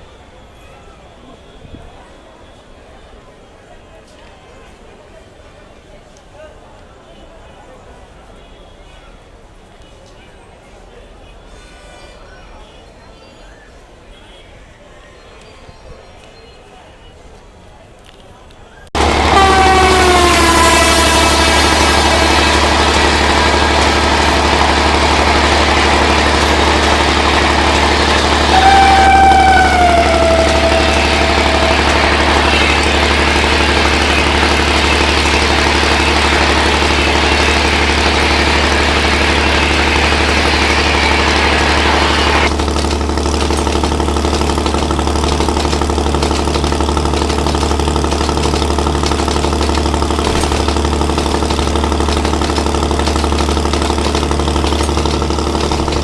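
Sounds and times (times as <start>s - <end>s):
hissing noise: 19.0s - 42.5s
train horn: 19.0s - 42.5s
diesel train engine drone: 19.0s - 56.0s.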